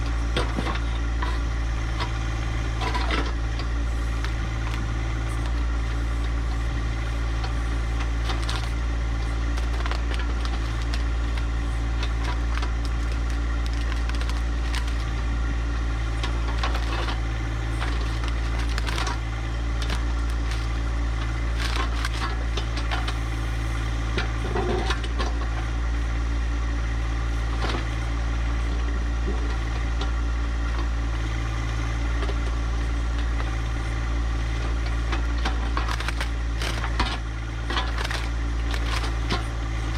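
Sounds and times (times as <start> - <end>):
tractor diesel engine running: 0.0 - 39.9
rock and debris crunching: 2.0 - 23.2, 34.7 - 39.9.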